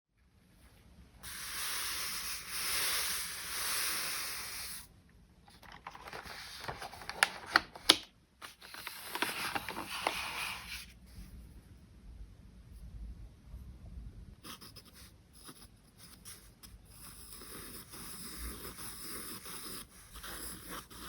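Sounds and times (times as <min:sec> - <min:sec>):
charcoal rubbing on paper: 0:14.5 - 0:21.0.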